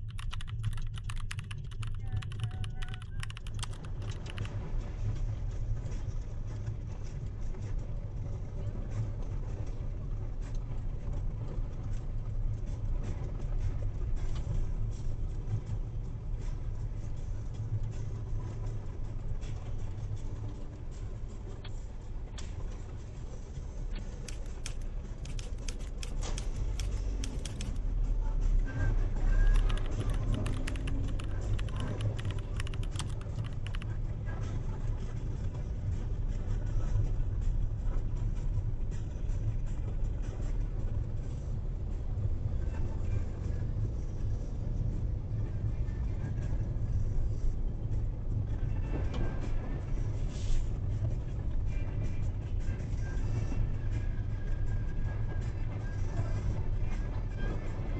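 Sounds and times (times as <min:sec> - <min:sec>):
small clicks and rattles: 0:00.0 - 0:04.6, 0:24.0 - 0:27.8, 0:29.4 - 0:34.0
car engine and road rumble: 0:00.0 - 0:57.9.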